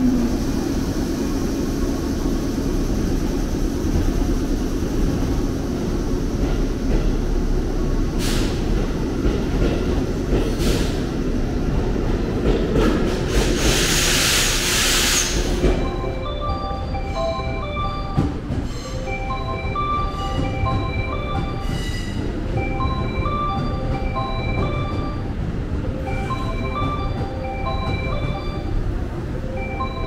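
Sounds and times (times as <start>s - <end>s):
electric train running rumble: 0.0s - 30.0s
loud hiss: 13.3s - 15.6s.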